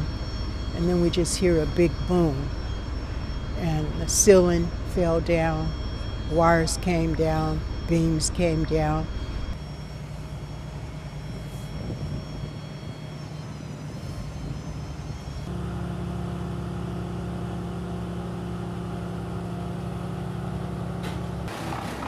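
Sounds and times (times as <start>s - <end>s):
loud steady engine hum: 0.0s - 22.0s.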